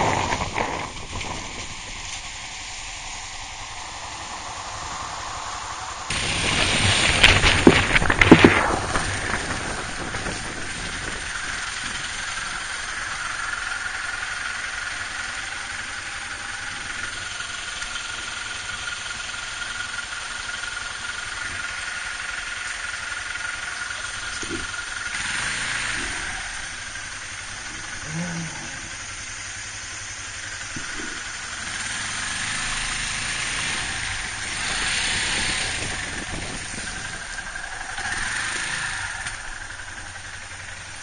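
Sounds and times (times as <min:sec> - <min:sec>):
faint steady whine: 0:00.0 - 0:41.0
motorcycle engine running: 0:00.0 - 0:41.0
noisy hiss: 0:00.0 - 0:41.0.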